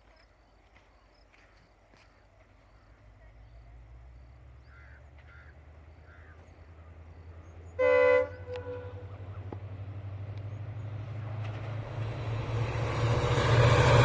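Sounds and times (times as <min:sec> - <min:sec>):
train rumble: 0:07.5 - 0:14.0
train horn blast: 0:07.8 - 0:09.2, 0:11.8 - 0:14.0.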